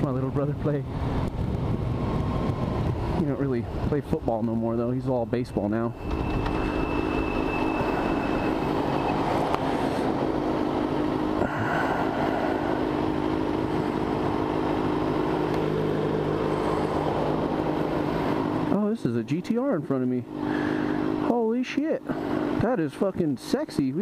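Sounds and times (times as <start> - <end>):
wind noise: 0.0 - 4.5, 5.2 - 10.4
motorcycle engine cruising: 0.0 - 24.0
road noise: 0.0 - 24.0.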